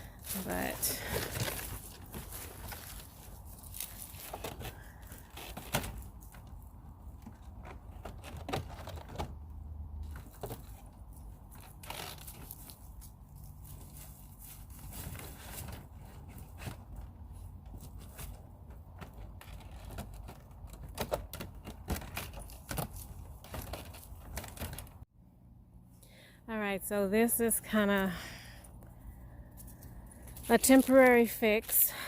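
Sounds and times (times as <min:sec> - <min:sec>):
rustling and scraping: 0:00.0 - 0:25.1.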